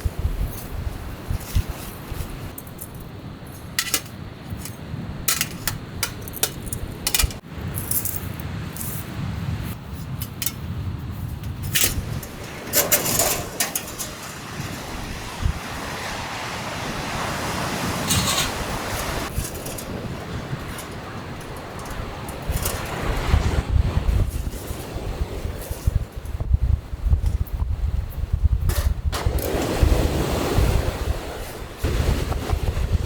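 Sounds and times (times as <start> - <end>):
steady low rumble: 0.0 - 16.0
metallic clinks of camping gear: 1.3 - 9.1, 19.3 - 23.2.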